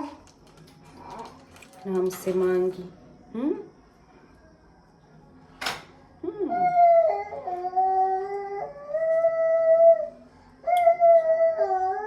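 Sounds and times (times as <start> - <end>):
dog howling: 6.5 - 12.0.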